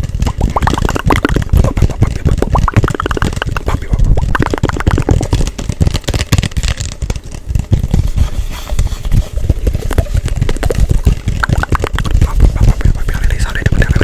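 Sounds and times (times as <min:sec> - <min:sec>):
hand taps rubs and clicks: 0:00.3 - 0:07.0, 0:11.4 - 0:13.6.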